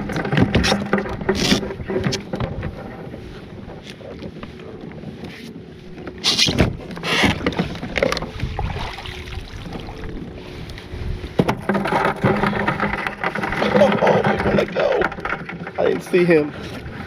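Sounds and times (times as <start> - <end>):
water splashing: 6.2 - 10.3
knocks against a kayak: 11.4 - 16.0.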